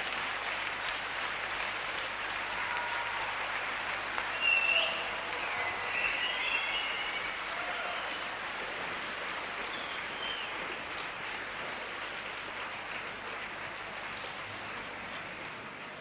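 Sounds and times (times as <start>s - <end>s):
audience applauding: 0.0s - 16.0s
crowd calling out: 2.4s - 10.6s.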